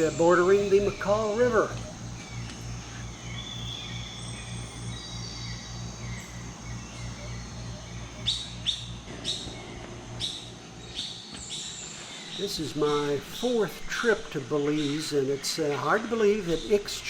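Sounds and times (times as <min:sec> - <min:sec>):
sharp bird chirps: 0:00.0 - 0:12.4
low hum: 0:00.0 - 0:15.4
birds chirping and calling: 0:00.0 - 0:17.0.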